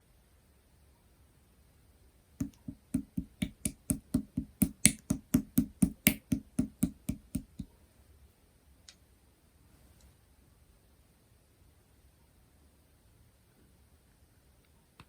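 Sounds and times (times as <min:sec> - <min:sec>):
slime popping when pressed: 0:02.4 - 0:07.6.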